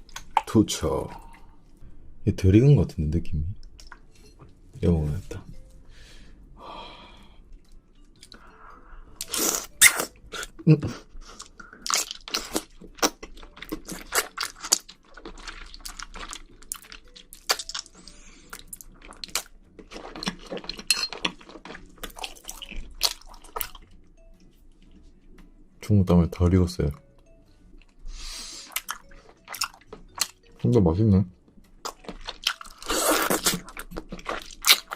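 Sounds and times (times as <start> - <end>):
crunchy chewing: 11.2 - 23.9, 31.8 - 34.9.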